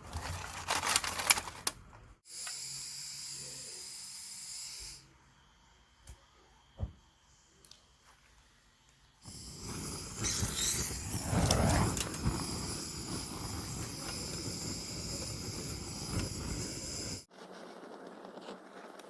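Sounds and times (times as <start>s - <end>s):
fire crackling and popping: 9.2s - 19.0s
wood fire rushing: 9.3s - 19.0s.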